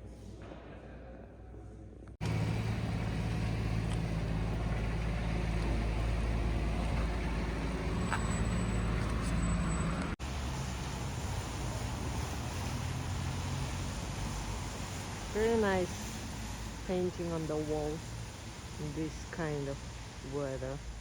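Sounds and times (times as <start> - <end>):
low hum: 2.2 - 10.2
engine running: 2.2 - 21.0.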